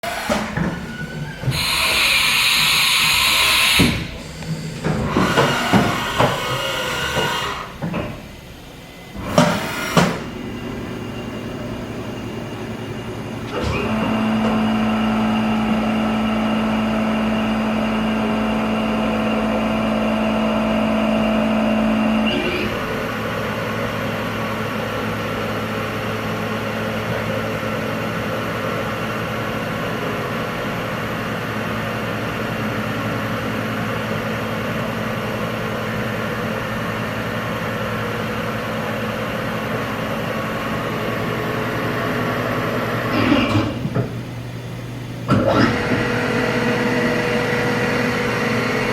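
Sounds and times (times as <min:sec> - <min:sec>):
cnc machine hum and whine: 0:00.0 - 0:48.9.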